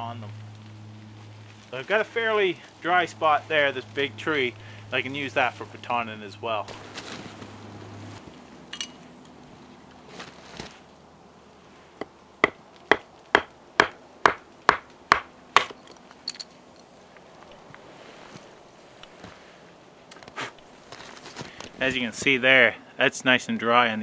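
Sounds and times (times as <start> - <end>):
baton knocking blade through wood: 12.4 - 15.8.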